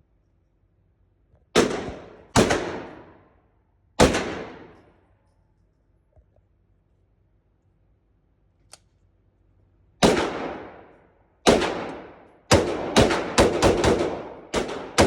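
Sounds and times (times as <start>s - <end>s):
pistol shots with long echo: 1.5s - 3.3s, 4.0s - 5.0s, 10.0s - 15.0s.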